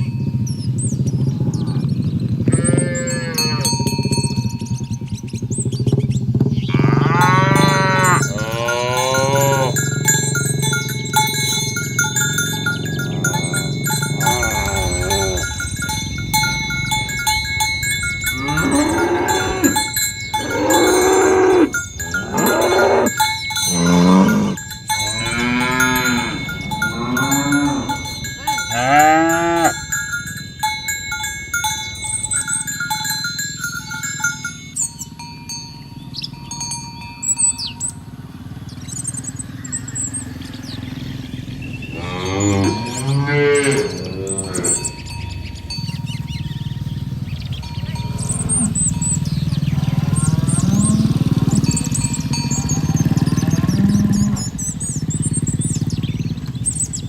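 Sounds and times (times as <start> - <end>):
cattle mooing: 1.2 - 4.9, 6.6 - 30.4, 41.7 - 54.8.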